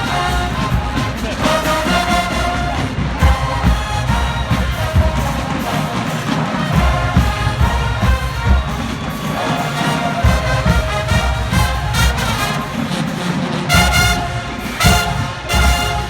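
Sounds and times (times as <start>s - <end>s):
heavy drum beats: 0.0s - 16.0s
marching band playing: 0.0s - 16.0s.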